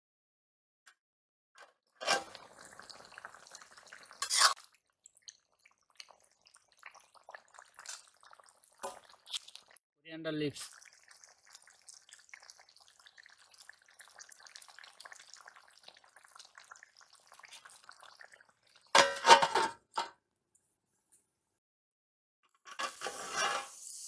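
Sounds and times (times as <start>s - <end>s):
curry simmering in a pan: 2.0s - 9.8s, 10.6s - 19.0s
metal lid clattering on a pan: 19.0s - 20.1s.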